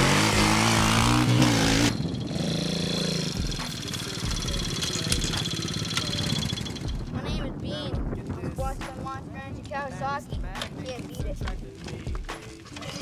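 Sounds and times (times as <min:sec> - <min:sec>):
motorbike engine revving: 0:00.0 - 0:07.2.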